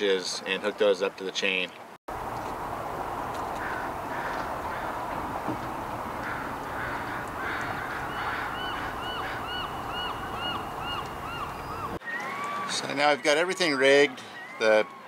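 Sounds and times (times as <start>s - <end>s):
outdoor background noise: 0.0s - 15.0s
bird calling in rapid notes: 6.3s - 14.6s.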